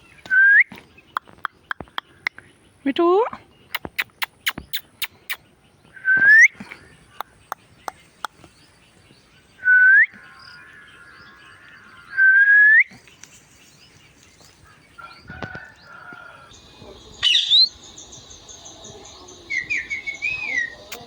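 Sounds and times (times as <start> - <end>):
parrot whistling: 17.2 - 17.8, 19.5 - 21.0.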